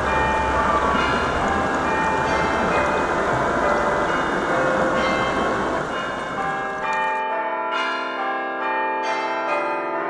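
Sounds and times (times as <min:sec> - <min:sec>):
church bells ringing: 0:00.0 - 0:10.0.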